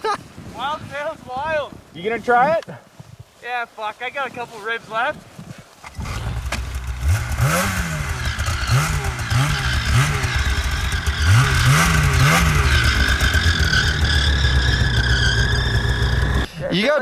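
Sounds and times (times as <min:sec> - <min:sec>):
snowmobile engine revving: 0:05.9 - 0:16.5.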